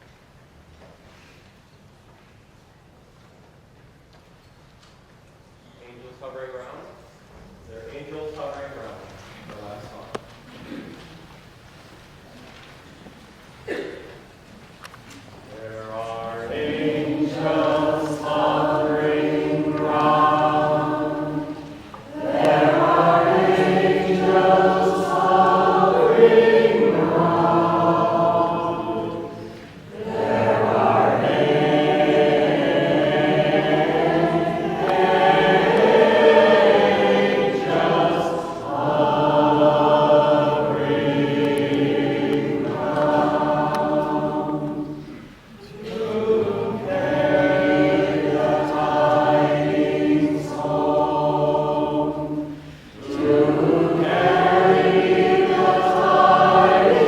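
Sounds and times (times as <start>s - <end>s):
choir singing in harmony: 15.7s - 57.0s.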